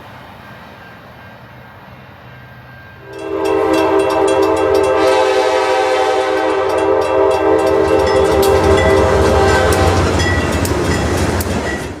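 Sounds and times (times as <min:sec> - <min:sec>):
train rumbling: 0:00.0 - 0:12.0
train wheels clicking: 0:00.0 - 0:12.0
locomotive air horn chord: 0:03.0 - 0:10.7.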